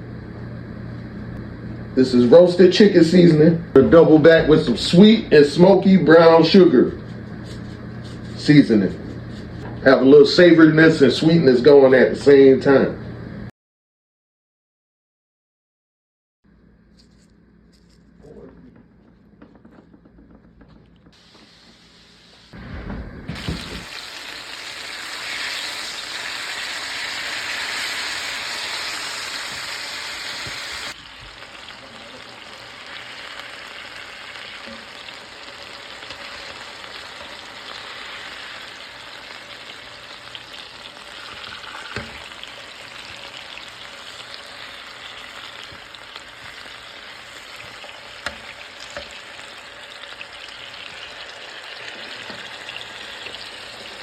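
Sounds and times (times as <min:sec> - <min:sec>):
meat sizzling in a skillet: 0:23.4 - 0:54.0.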